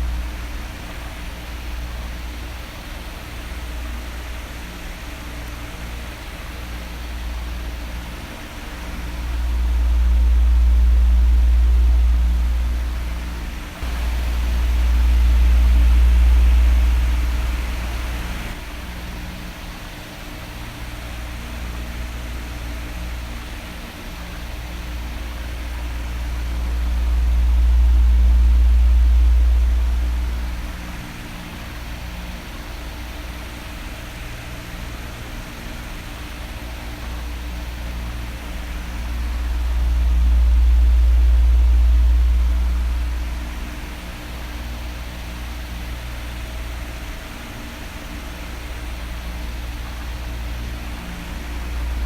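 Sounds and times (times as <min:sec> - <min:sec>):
electric fan blowing: 0:00.0 - 0:52.0
deep low rumble: 0:08.7 - 0:18.6, 0:25.2 - 0:32.2, 0:37.1 - 0:46.8, 0:48.9 - 0:52.0.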